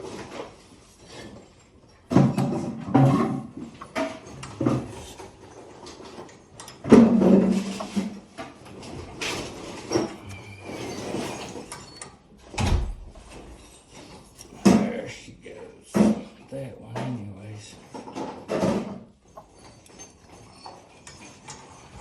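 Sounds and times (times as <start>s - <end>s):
metal knocks and clanks: 2.0s - 14.9s
faint squeak: 9.8s - 12.2s.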